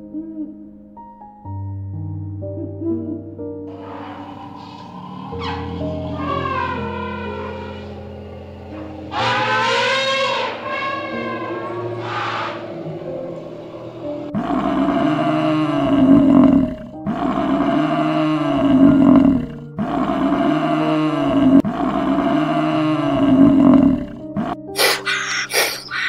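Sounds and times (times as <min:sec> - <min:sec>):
large animal long low calls: 0:03.7 - 0:24.1.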